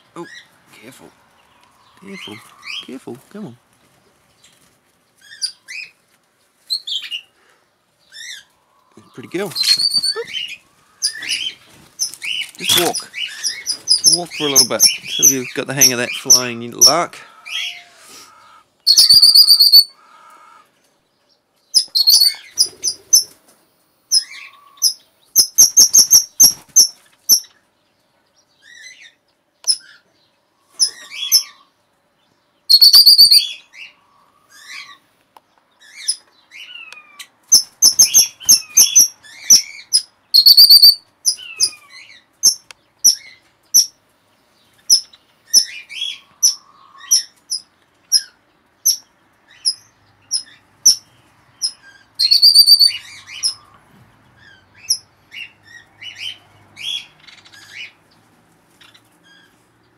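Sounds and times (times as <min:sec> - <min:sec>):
high-pitched bird chirps: 0:08.1 - 0:15.5, 0:18.8 - 0:20.0, 0:21.8 - 0:23.0, 0:32.7 - 0:33.6, 0:35.9 - 0:41.8, 0:44.9 - 0:53.7
gliding bird whistles: 0:09.6 - 0:10.2, 0:18.9 - 0:19.9, 0:32.7 - 0:33.5, 0:52.2 - 0:53.0.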